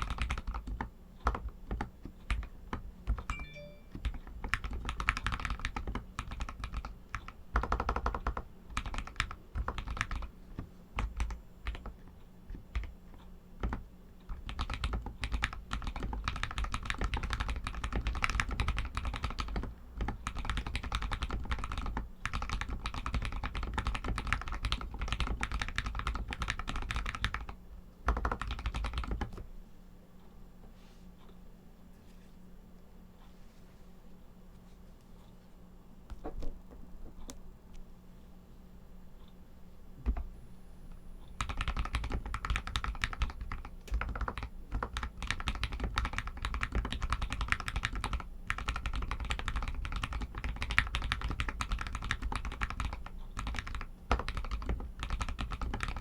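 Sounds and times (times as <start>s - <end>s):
typing on mechanical keyboard: 0.0s - 13.0s, 13.6s - 29.4s, 41.4s - 56.0s.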